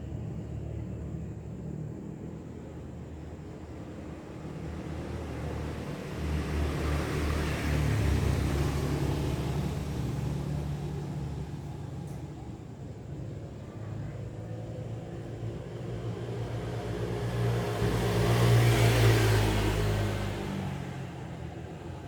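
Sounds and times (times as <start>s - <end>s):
vehicle passing by: 4.5s - 12.4s, 14.9s - 22.0s.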